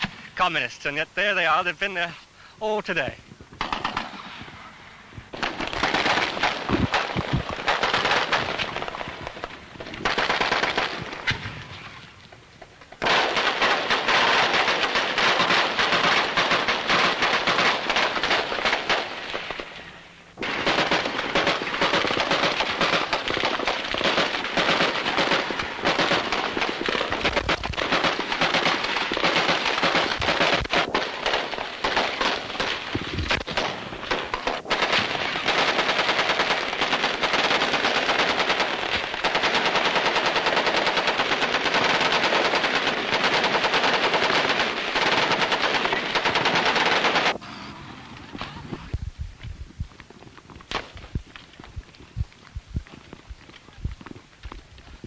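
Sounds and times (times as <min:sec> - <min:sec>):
automatic gunfire: 0:03.6 - 0:04.4, 0:05.3 - 0:11.4, 0:13.0 - 0:19.7, 0:20.4 - 0:47.4.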